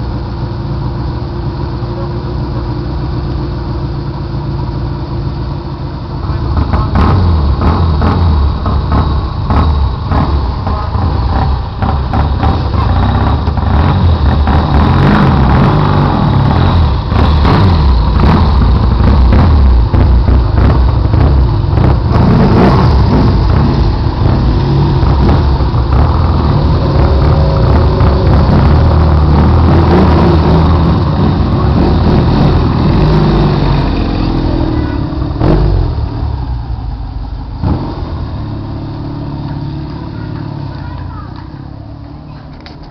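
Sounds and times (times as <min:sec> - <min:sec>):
motorcycle engines revving: 0:06.1 - 0:42.9.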